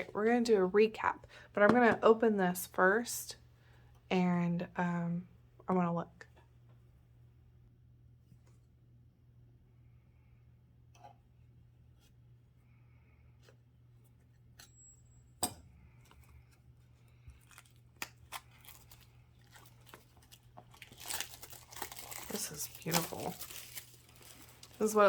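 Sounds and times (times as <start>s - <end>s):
plastic wrap crinkling and tearing: 16.8s - 25.0s.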